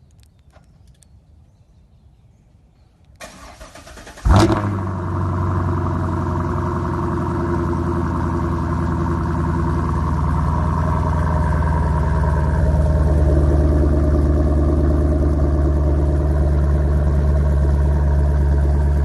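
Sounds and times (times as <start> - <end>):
car starter cranking: 3.2 - 4.7
car engine idling: 3.2 - 19.0.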